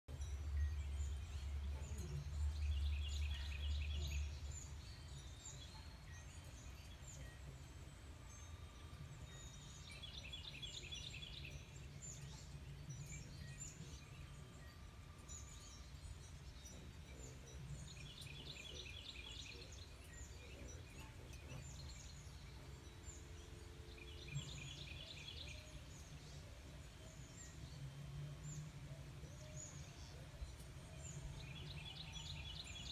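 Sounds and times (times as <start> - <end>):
songbird singing: 0.0 - 32.9.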